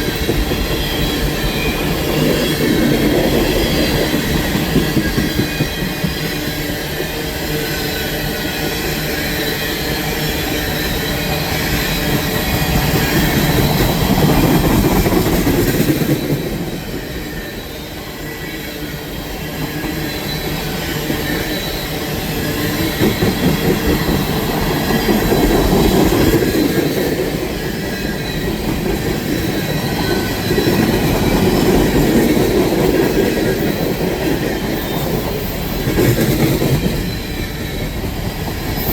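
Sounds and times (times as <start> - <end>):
high wheel squeal: 0.0 - 38.9
train cars rumbling on rails: 0.0 - 38.9.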